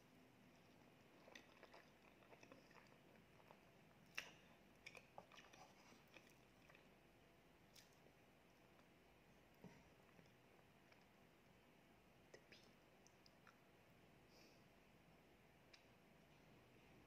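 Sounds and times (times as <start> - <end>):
mouth chewing with wet clicks: 0.5 - 7.0, 7.6 - 9.0, 10.0 - 11.2, 12.3 - 13.7, 15.7 - 16.0.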